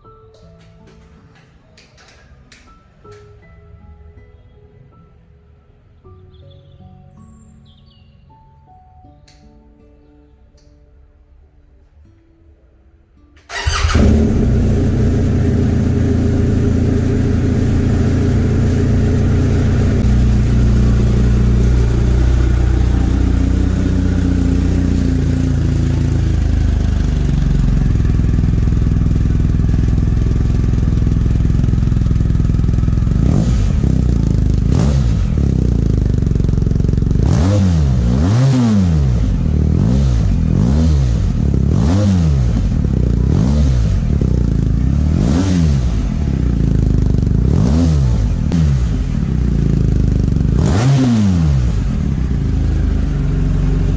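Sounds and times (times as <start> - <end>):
motorcycle engine idling and revving: 13.5 - 53.9.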